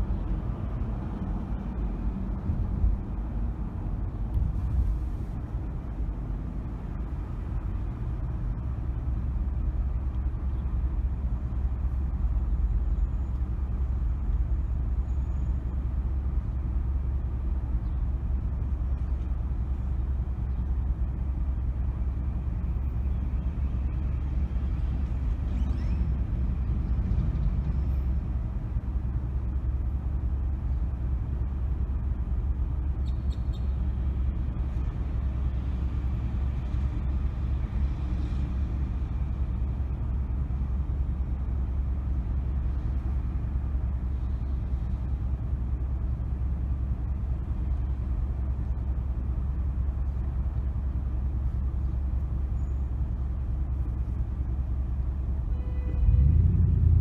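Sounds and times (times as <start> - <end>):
car driving: 33.9 - 57.0.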